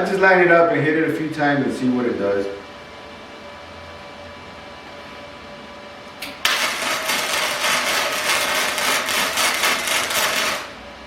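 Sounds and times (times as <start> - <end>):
welding arc crackling: 6.2 - 10.8.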